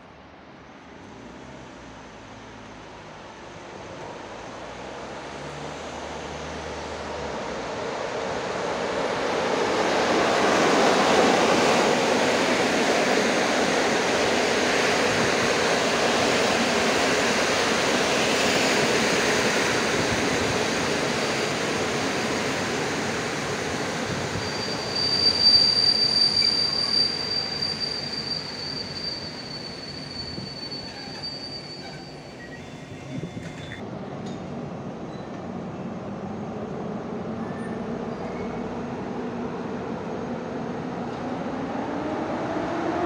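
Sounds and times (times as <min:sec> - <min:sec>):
train rolling: 0:09.1 - 0:33.8
wheel or brake squeal: 0:23.7 - 0:33.8, 0:37.4 - 0:38.6.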